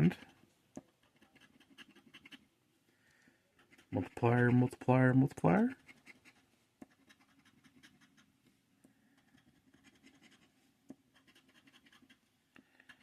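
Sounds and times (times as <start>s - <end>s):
scratching lottery ticket: 0.0s - 2.4s, 5.7s - 8.3s, 9.2s - 13.0s.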